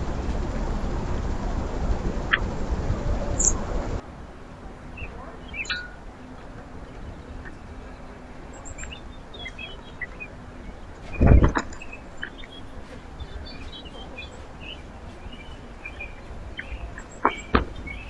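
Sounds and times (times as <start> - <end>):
loud rushing noise: 0.0 - 4.0
songbirds chirping: 0.0 - 18.0.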